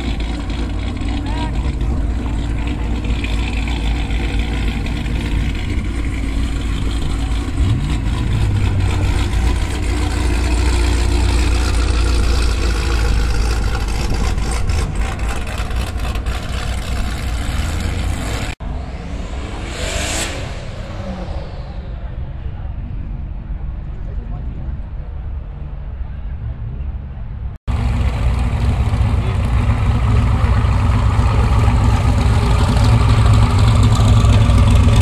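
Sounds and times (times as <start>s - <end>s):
engine crackles: 0.0s - 18.7s, 27.7s - 35.0s
car engine revving: 0.0s - 22.6s, 27.7s - 35.0s.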